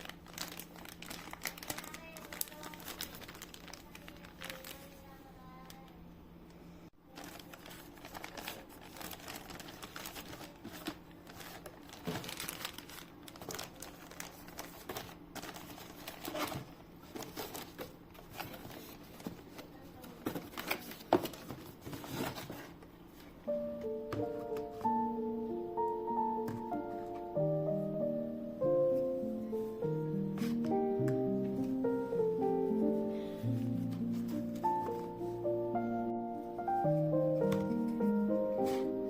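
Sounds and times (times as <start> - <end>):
crinkly material rustling: 0.0 - 6.0, 7.0 - 23.4, 31.4 - 39.0.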